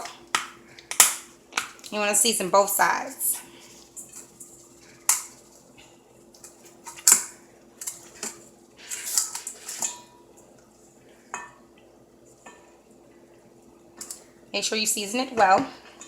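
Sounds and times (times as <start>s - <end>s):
faint steady hum: 0.0s - 16.0s
dishes and utensils clinking: 6.4s - 10.2s.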